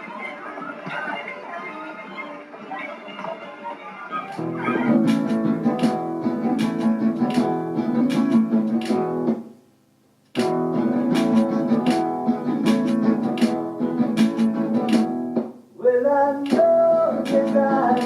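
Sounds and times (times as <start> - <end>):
guitar strumming chords: 4.4 - 9.6, 10.4 - 15.6, 16.2 - 18.0.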